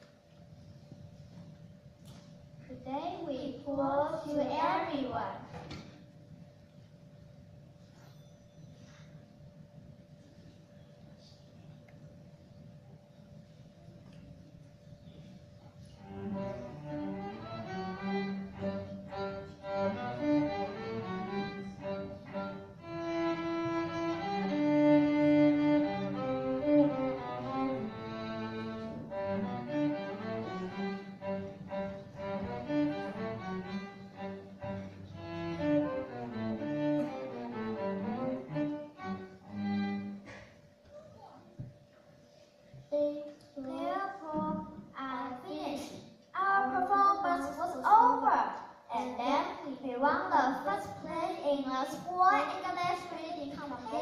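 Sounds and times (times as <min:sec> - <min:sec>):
string ensemble playing: 0:16.0 - 0:40.3.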